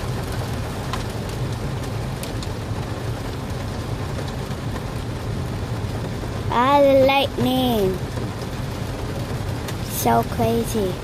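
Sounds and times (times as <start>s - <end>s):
car low rumble: 0.0s - 11.0s
heavy rain on a car: 0.0s - 11.0s
sharp ticks of raindrops: 0.0s - 11.0s.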